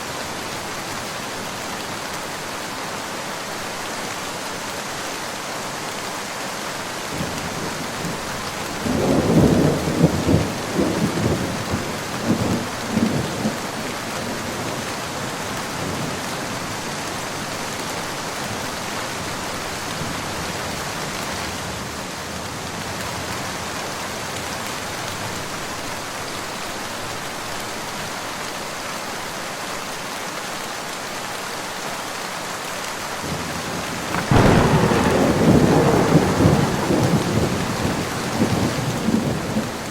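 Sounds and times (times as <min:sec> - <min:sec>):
steady rain: 0:00.0 - 0:39.9
thunder rumbling: 0:07.2 - 0:14.5, 0:33.3 - 0:39.9
thunderclap: 0:33.8 - 0:39.9.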